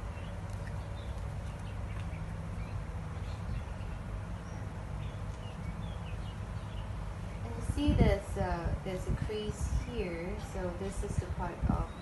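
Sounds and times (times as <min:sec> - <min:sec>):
bird chirps: 0:00.0 - 0:07.6
low background rumble: 0:00.0 - 0:12.0.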